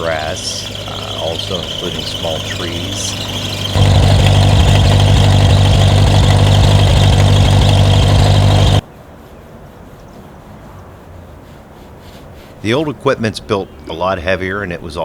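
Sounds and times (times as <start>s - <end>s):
tractor engine running: 0.0s - 8.8s.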